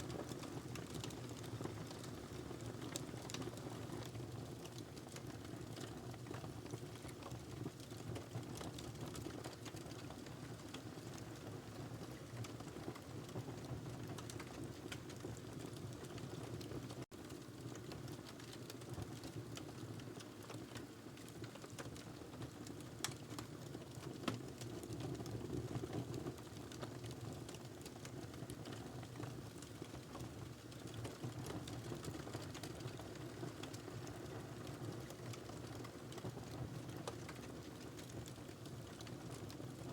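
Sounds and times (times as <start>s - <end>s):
fire crackling and popping: 0.0s - 39.9s
low rumble of flames: 12.2s - 39.9s.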